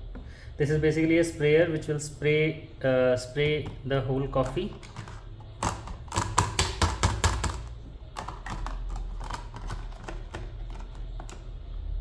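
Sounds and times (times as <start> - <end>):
plastic parts clicking and tapping: 4.4 - 11.5.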